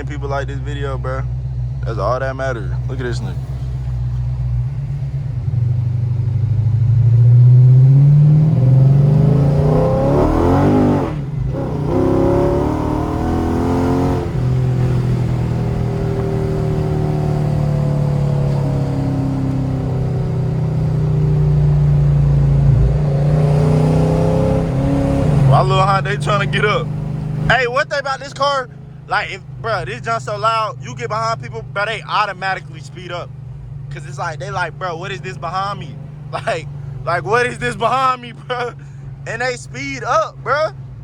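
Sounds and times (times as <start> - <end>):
car engine accelerating hard: 0.0 - 41.0.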